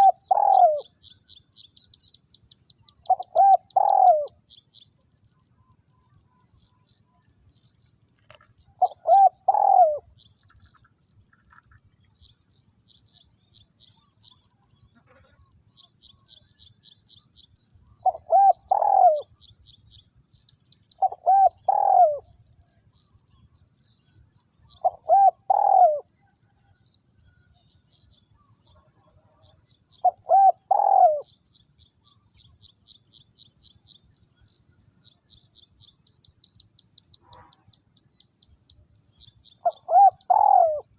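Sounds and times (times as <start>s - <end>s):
dove cooing: 0.0s - 1.1s, 3.0s - 4.4s, 8.8s - 10.2s, 18.0s - 19.4s, 21.0s - 22.4s, 24.7s - 26.1s, 30.0s - 31.3s, 39.6s - 40.9s
small birds chirping faintly: 0.0s - 40.9s.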